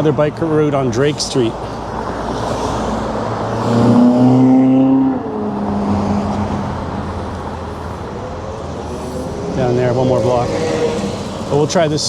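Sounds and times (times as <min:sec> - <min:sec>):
road and wind noise: 0:00.0 - 0:12.0
motor vehicle passing: 0:00.6 - 0:12.0.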